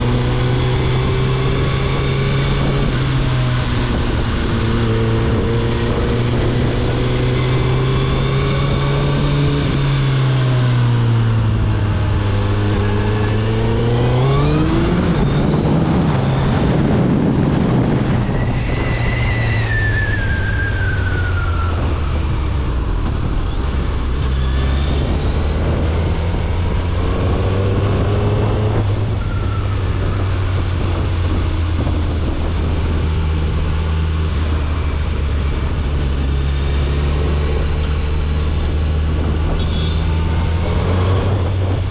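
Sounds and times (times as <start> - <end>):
motorcycle engine revving: 0.0 - 41.9
wind on microphone: 0.0 - 41.9
high falling whine: 12.6 - 27.4.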